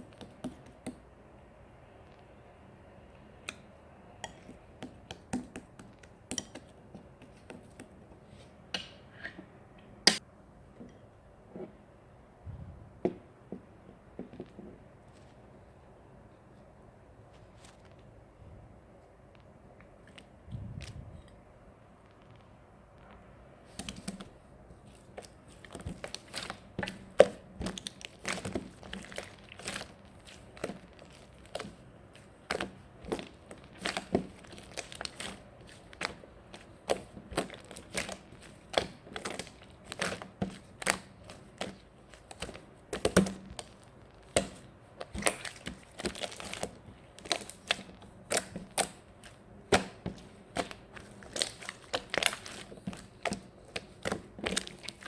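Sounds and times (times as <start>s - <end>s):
crinkling and crackling clicks: 19.2s - 24.3s, 24.9s - 55.0s.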